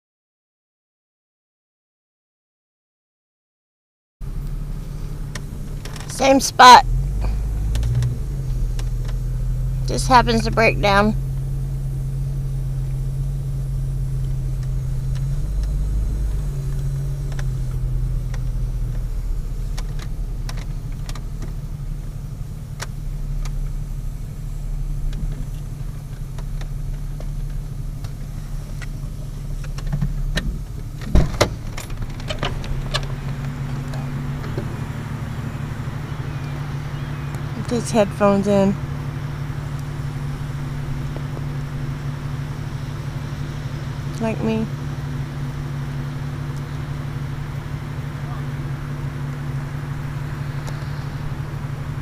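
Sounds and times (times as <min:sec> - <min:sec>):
car engine idling: 0:04.2 - 0:52.0
sharp knocks and clicks: 0:29.6 - 0:34.7.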